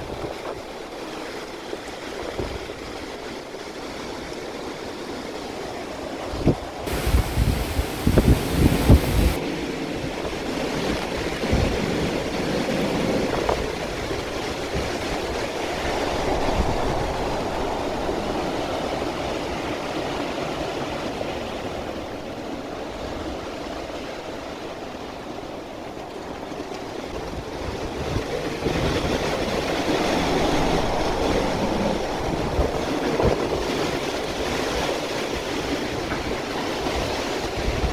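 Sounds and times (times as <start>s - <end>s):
strong wind: 0.0s - 37.9s
wind buffeting microphone: 6.1s - 37.9s
driving rain: 6.9s - 9.4s.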